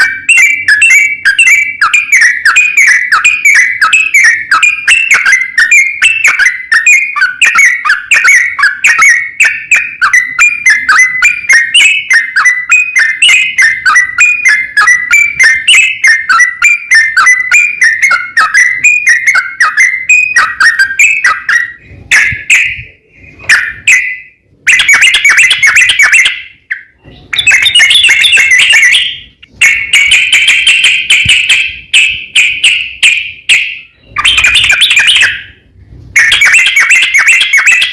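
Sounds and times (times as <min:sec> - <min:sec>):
bird whistled chattering song: 0:00.0 - 0:37.9.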